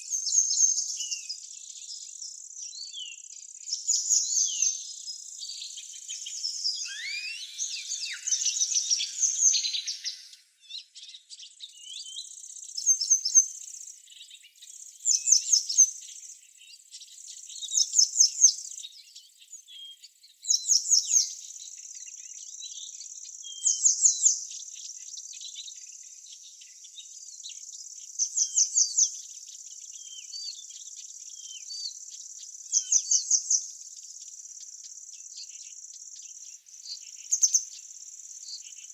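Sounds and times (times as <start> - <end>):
birds singing: 0.0 - 38.9
high insect drone: 6.0 - 10.5.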